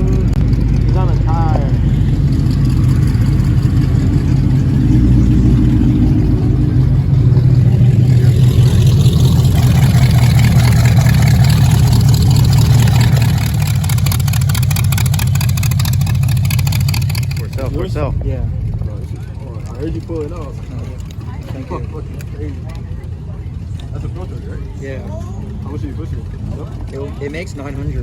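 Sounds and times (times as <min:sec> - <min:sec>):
rapid choppy pulsing: 0:00.0 - 0:21.4
car engine idling: 0:00.0 - 0:28.0.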